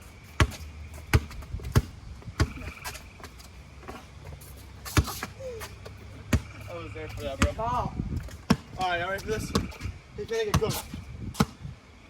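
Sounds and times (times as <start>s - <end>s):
basketball bouncing: 0.4s - 4.1s, 4.8s - 9.9s.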